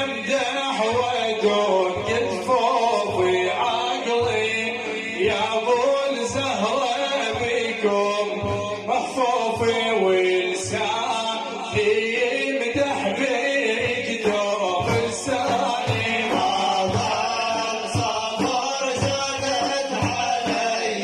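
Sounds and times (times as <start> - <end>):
religious praise chanting: 0.0 - 21.0
regular drum beat: 10.7 - 21.0.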